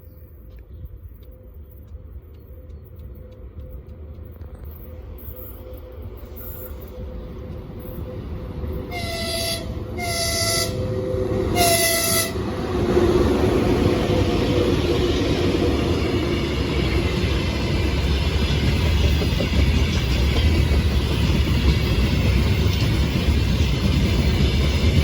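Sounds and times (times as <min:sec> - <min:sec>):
train rolling past: 0:00.1 - 0:25.0
train horn blasts: 0:08.9 - 0:12.6.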